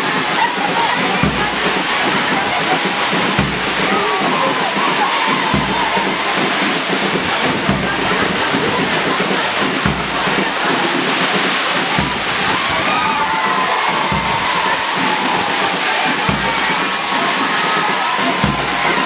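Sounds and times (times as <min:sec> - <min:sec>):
faint voices: 0:00.0 - 0:19.0
heavy rain pouring: 0:00.0 - 0:19.0
low thump: 0:01.2 - 0:01.8, 0:03.3 - 0:04.0, 0:05.5 - 0:06.4, 0:07.0 - 0:09.0, 0:09.6 - 0:10.6, 0:11.9 - 0:13.3, 0:14.1 - 0:15.4, 0:16.3 - 0:17.0, 0:18.4 - 0:19.0.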